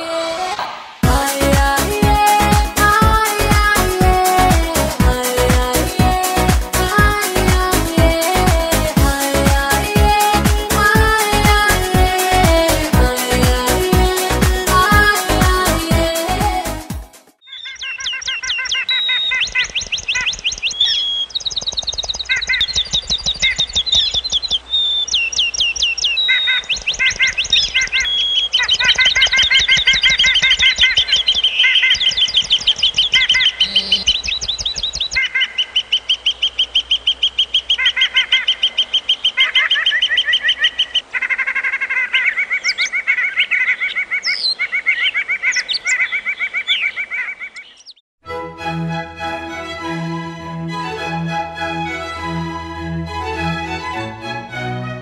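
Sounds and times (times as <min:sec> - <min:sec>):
songbirds trilling and chirping: 0:17.4 - 0:48.0.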